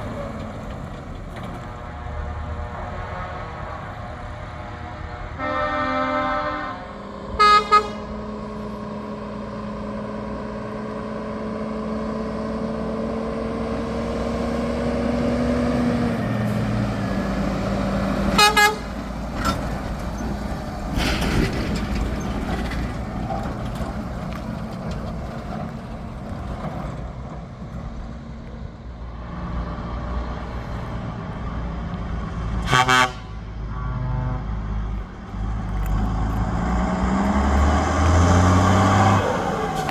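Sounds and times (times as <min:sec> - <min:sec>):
truck engines driving past: 0:00.0 - 0:39.9
truck horns tooting: 0:01.9 - 0:08.3, 0:14.6 - 0:21.5, 0:32.6 - 0:34.8.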